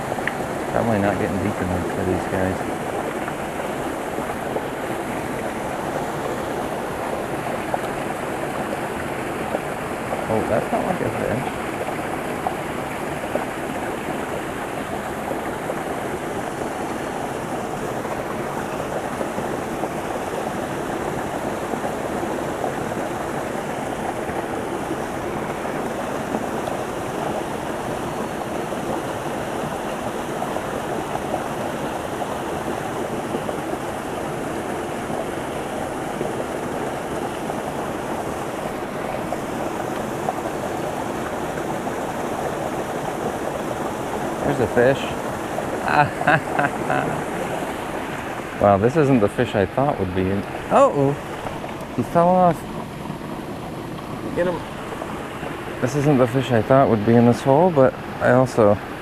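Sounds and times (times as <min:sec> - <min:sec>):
small waterfall pouring into pool: 0:00.0 - 0:59.0.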